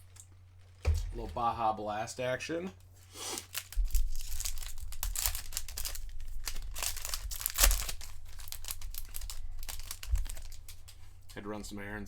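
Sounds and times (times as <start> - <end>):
foil wrapper crinkling and tearing: 3.0 - 11.1.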